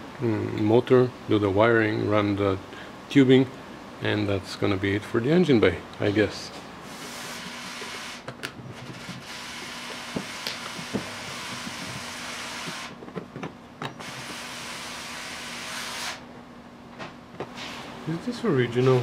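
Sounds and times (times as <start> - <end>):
clicks and knocks of handling: 13.0 - 14.0.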